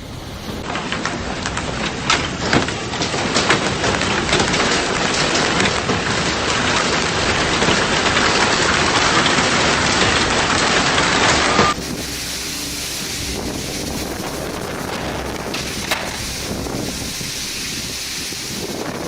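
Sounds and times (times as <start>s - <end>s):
heavy rain pouring: 0.0s - 19.0s
raindrops ticking: 11.7s - 19.0s.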